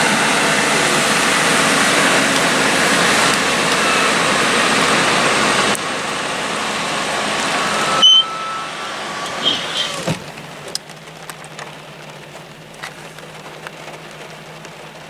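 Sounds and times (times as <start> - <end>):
tyres hissing through water: 0.0 - 11.1
heavy vehicle engine: 0.0 - 15.0.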